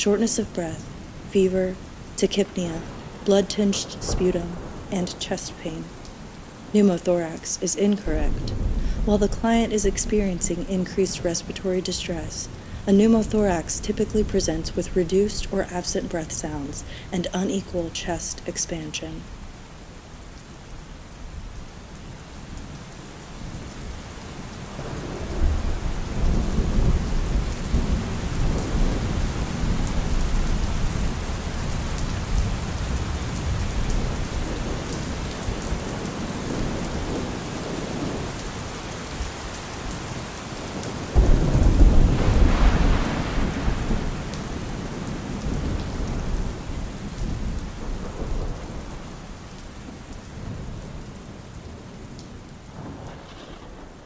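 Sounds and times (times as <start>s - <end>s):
steady rain: 0.0s - 54.0s
thunderclap: 2.8s - 5.5s, 8.0s - 10.6s, 41.1s - 49.2s, 52.8s - 54.0s
rolling thunder: 8.0s - 10.6s, 24.8s - 31.4s, 40.8s - 49.3s, 52.7s - 54.0s.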